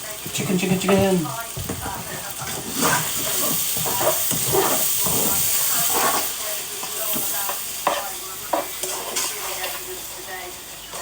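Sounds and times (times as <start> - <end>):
food sizzling in a frying pan: 0.0 - 11.0
utensil scraping a pan: 2.1 - 6.4, 7.8 - 9.8.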